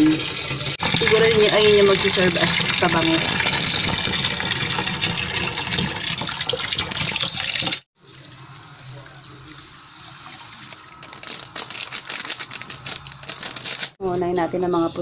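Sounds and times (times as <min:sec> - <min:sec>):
water gushing from a hose: 0:00.0 - 0:07.9.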